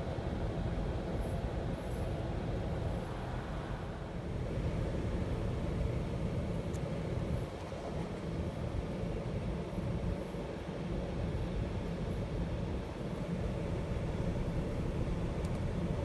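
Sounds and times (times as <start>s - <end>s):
car engine rumble: 13.3s - 16.0s.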